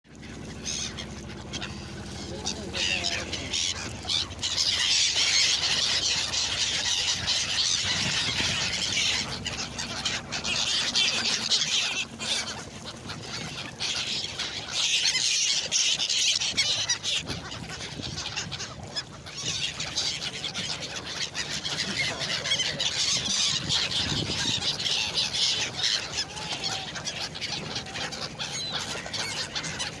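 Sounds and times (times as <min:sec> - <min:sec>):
flock of birds calling: 0:00.2 - 0:30.0.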